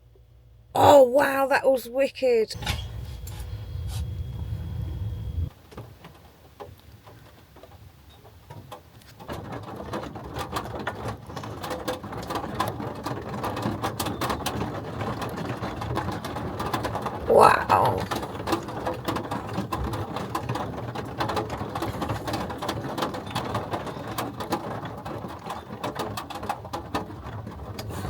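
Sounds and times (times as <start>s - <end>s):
low rumble of thunder: 3.6s - 5.5s
rain pattering on a roof: 5.5s - 28.0s.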